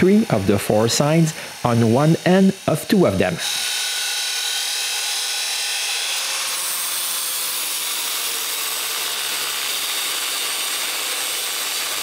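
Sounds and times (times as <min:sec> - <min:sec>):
power tool cutting metal tubing: 0:00.0 - 0:12.0.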